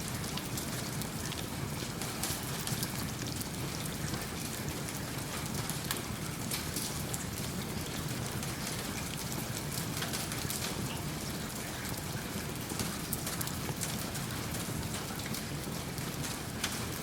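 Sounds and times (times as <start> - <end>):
steady rain hiss: 0.0 - 3.6.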